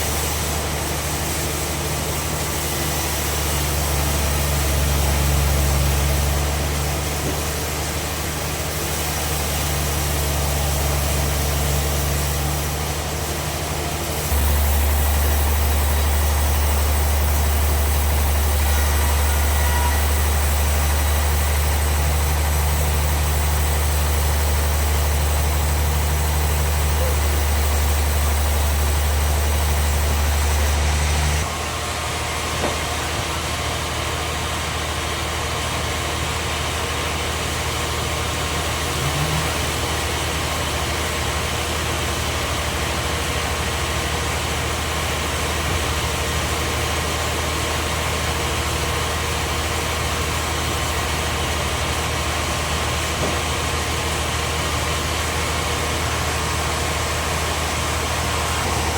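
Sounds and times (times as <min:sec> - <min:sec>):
sawmill machinery running: 0:00.0 - 0:58.9
thin steady whine: 0:00.0 - 0:58.9
heavy low hum: 0:14.2 - 0:31.6, 0:38.6 - 0:40.6, 0:56.1 - 0:58.9.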